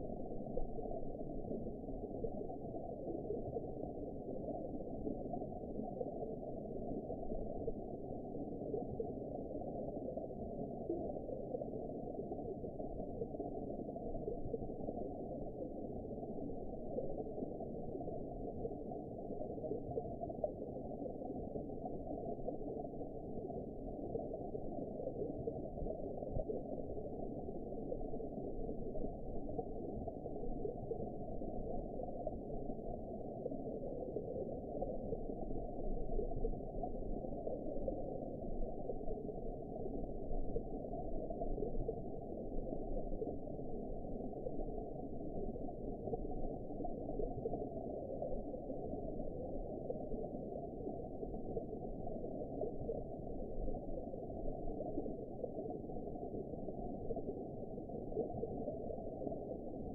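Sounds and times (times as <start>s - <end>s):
muffled underwater ambience: 0.0s - 59.9s.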